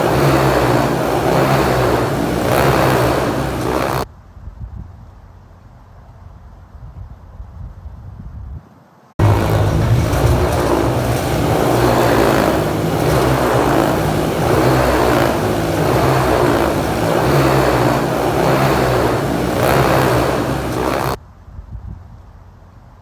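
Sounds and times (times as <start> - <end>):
motorcycle engine running: 0.0 - 4.1, 9.2 - 21.2
faint low rumble: 9.2 - 21.8.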